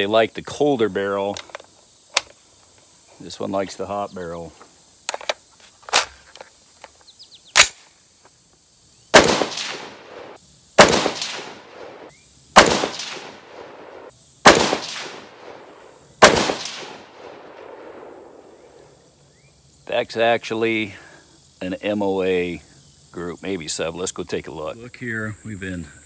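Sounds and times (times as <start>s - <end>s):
small clicks: 1.3s - 2.4s
rifle shots with echo: 9.1s - 18.8s.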